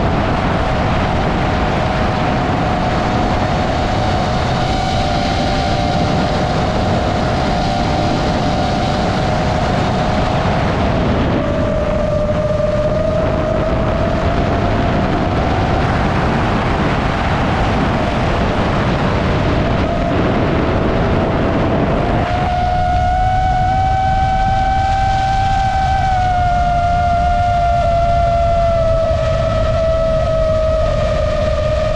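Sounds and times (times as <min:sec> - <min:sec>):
drone motors whining: 0:00.0 - 0:31.9
rush of air: 0:00.0 - 0:31.9.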